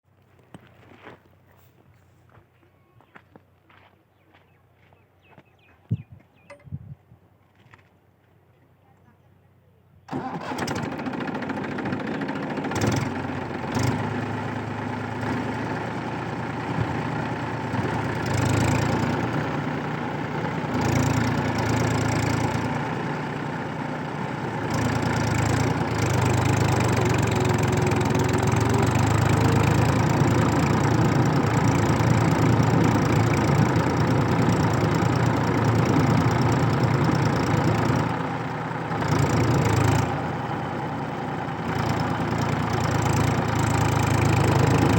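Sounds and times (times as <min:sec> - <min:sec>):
tractor diesel engine running: 0:10.1 - 0:44.9.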